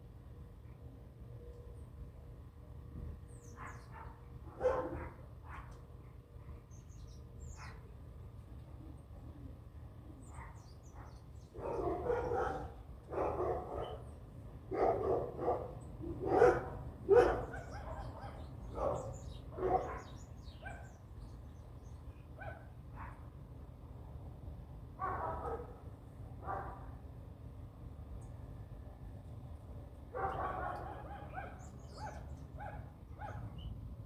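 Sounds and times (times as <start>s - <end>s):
dog barking: 3.6s - 5.8s, 10.4s - 14.1s, 14.7s - 21.0s, 22.4s - 23.2s, 25.0s - 25.8s, 26.4s - 26.9s, 30.1s - 33.6s
small birds chirping: 17.2s - 22.3s, 30.2s - 33.8s.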